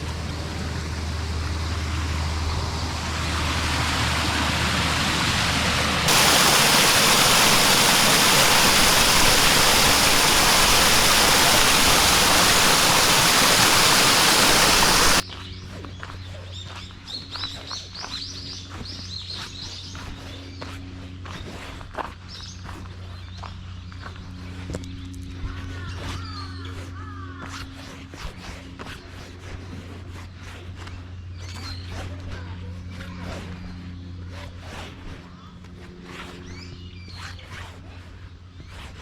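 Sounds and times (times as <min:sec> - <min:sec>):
birds chirping: 0:06.1 - 0:15.2
waterfall rushing: 0:06.1 - 0:15.2.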